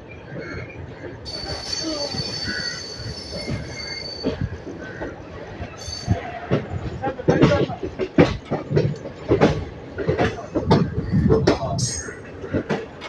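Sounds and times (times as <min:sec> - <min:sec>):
train coaches rumbling and knocking: 0:00.0 - 0:13.0
train wheels squealing: 0:00.5 - 0:04.9, 0:05.6 - 0:06.8.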